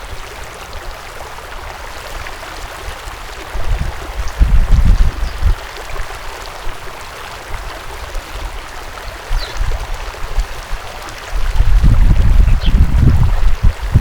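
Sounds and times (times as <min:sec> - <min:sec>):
wind gusting on microphone: 0:03.4 - 0:05.8, 0:09.3 - 0:14.0
faint bird chirp: 0:09.4 - 0:09.6.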